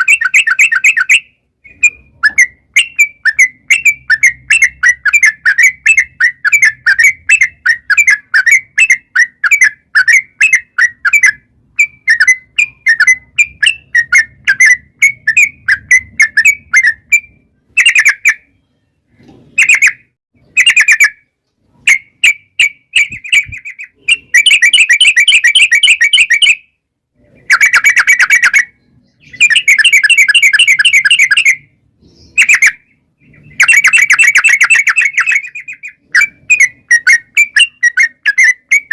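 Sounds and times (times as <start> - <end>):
bulbul singing chattering trills: 0.0 - 38.9.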